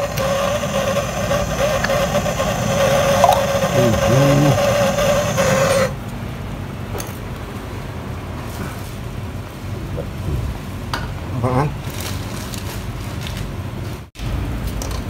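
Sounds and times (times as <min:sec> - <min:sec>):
motor humming: 0:00.0 - 0:06.0.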